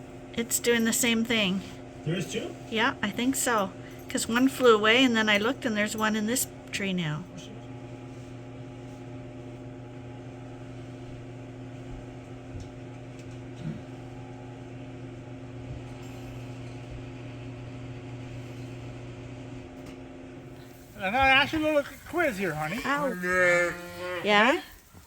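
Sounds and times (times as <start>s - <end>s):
motor humming: 0.0s - 25.0s.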